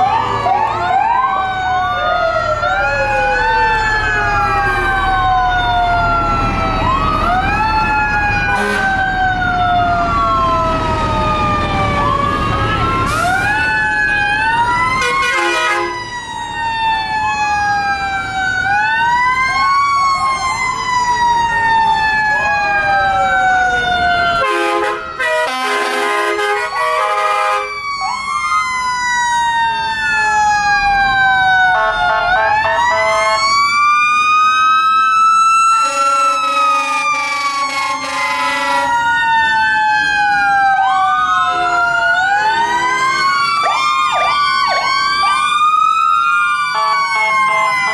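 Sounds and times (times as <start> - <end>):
fire truck sirens wailing: 0.0 - 47.9
air horn blasts: 8.5 - 9.0, 15.0 - 16.0, 24.4 - 27.8, 35.8 - 39.0.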